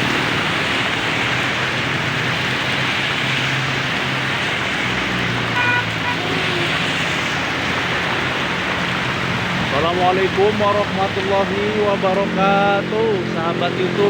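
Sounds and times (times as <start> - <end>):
heavy rain pouring: 0.0 - 14.0
road traffic: 0.0 - 14.0
car horn toot: 5.6 - 6.5.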